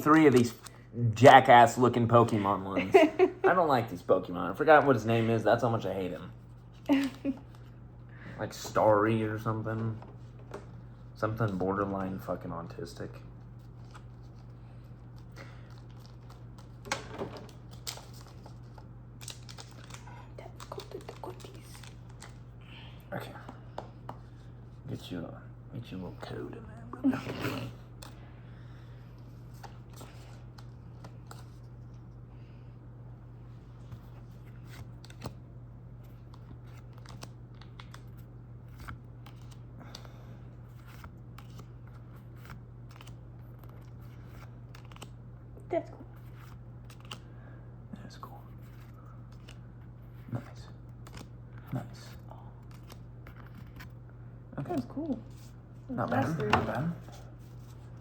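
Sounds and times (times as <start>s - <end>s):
steady low hum: 0.0s - 58.0s
trading cards clicking and sliding: 13.6s - 22.6s, 36.0s - 45.2s, 46.2s - 47.3s, 48.6s - 54.0s
trading cards clicking and tapping: 15.7s - 22.4s, 42.4s - 45.1s.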